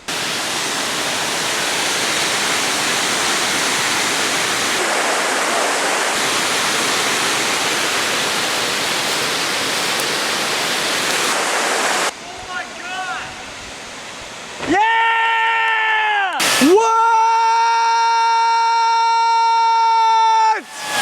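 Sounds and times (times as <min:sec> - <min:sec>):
waterfall rushing: 0:00.0 - 0:15.4, 0:16.4 - 0:16.8, 0:20.6 - 0:21.0.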